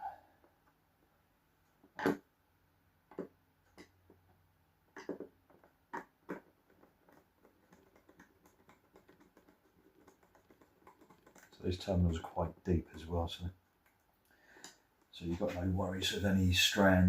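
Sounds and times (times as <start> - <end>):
hand tools clicking and knocking: 5.0 - 15.7.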